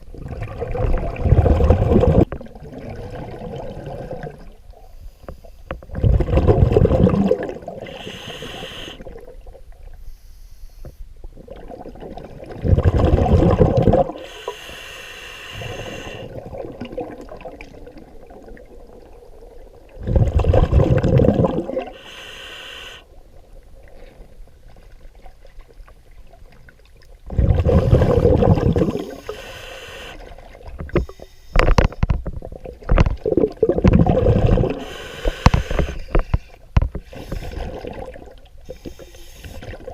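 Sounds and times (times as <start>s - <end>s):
bubbling exhalations underwater: 0.0s - 4.6s, 5.9s - 9.4s, 11.4s - 14.2s, 15.6s - 22.0s, 27.2s - 29.4s, 32.4s - 35.0s, 37.4s - 38.4s
hissing regulator inhalation: 7.8s - 9.0s, 14.2s - 16.4s, 21.9s - 23.1s, 27.7s - 30.3s, 34.7s - 37.8s, 38.6s - 39.8s.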